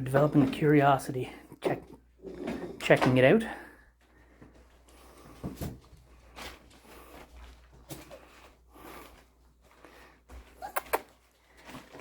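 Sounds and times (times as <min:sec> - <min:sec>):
soft scuffling: 0:03.9 - 0:12.0
puppies sniffing: 0:10.5 - 0:11.2.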